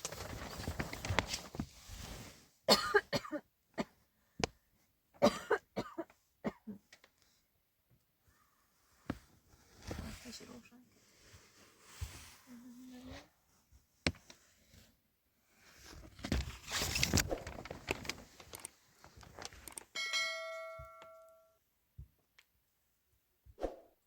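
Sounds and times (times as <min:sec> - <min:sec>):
rustling crackling noise: 0:00.0 - 0:02.5, 0:15.6 - 0:19.9
bell-like ding: 0:20.0 - 0:21.6.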